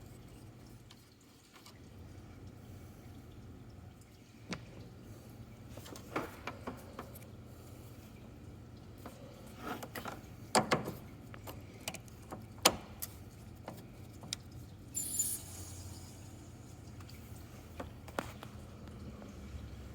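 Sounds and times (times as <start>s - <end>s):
steady low hum: 14.7s - 19.9s
short hiss: 15.0s - 16.6s.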